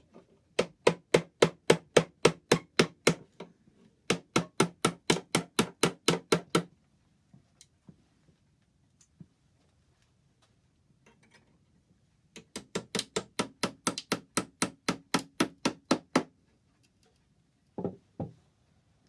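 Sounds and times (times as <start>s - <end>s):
hammer tapping on wood: 4.1s - 6.7s, 12.4s - 16.3s.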